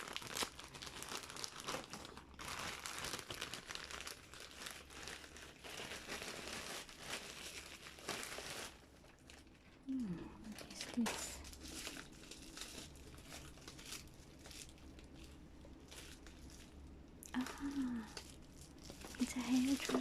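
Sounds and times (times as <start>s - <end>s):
plastic tearing: 0.0s - 9.6s, 10.4s - 20.0s
plastic packaging crinkling: 0.0s - 20.0s.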